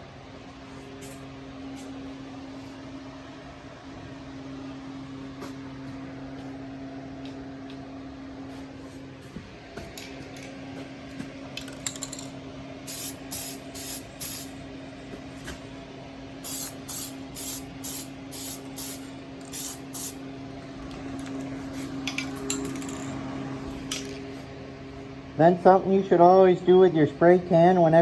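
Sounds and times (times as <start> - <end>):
spray paint can hissing: 12.9 - 14.5, 16.4 - 20.2.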